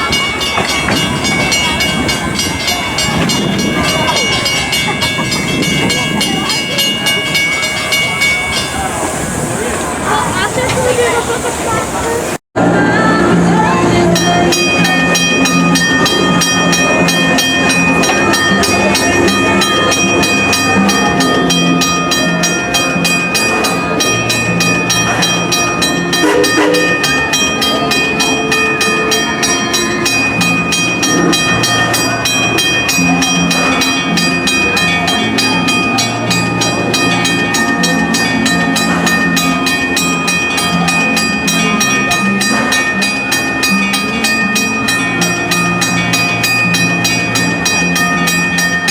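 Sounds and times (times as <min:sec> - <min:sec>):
steam train rolling: 0:00.0 - 0:48.9
high-pitched tones: 0:12.8 - 0:39.7.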